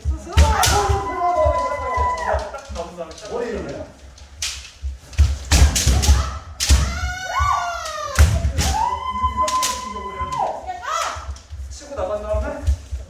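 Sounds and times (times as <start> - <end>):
feet stamping on wooden floor: 0.0 - 13.0
bamboo swords hitting armour: 0.3 - 1.5, 5.2 - 7.1, 8.2 - 8.9
long high shouts: 0.5 - 2.6, 6.2 - 11.3.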